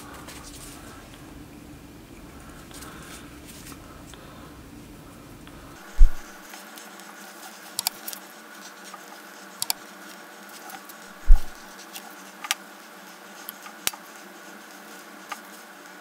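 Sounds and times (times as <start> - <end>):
steady hum: 0.0 - 16.0
brush dabbing and scraping: 5.8 - 12.4
loud low thump: 6.0 - 6.4, 11.2 - 11.6.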